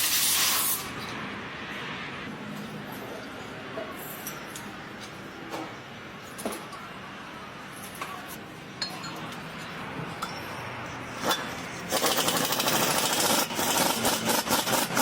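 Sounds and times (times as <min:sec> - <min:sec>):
impact wrench rattling: 0:11.2 - 0:15.0.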